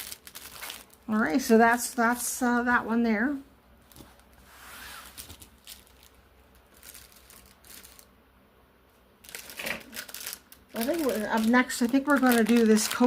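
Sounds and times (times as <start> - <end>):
packaging rustling and crinkling: 0.0 - 1.1, 3.8 - 8.1, 9.2 - 13.0.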